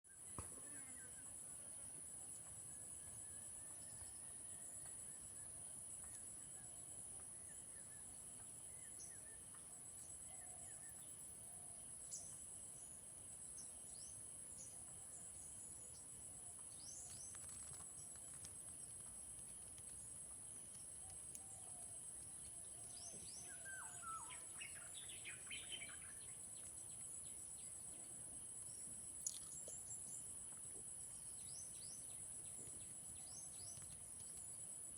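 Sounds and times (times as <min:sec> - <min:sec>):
high-pitched insect chorus: 0:00.1 - 0:34.9
bird chirps: 0:21.0 - 0:28.1.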